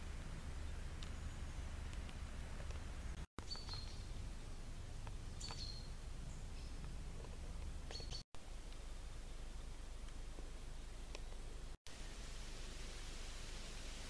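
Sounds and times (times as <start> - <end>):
bird chirping: 0.3 - 4.6, 5.2 - 6.9, 7.6 - 8.2.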